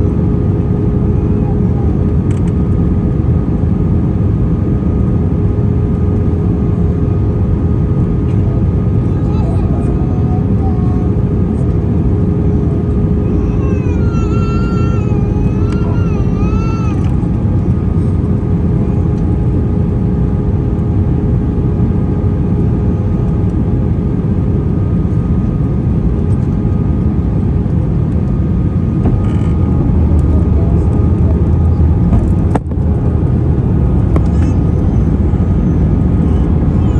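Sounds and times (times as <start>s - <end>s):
airplane cabin rumble: 0.0s - 36.9s
high wavering voice-like sound: 9.1s - 11.2s, 13.2s - 17.1s.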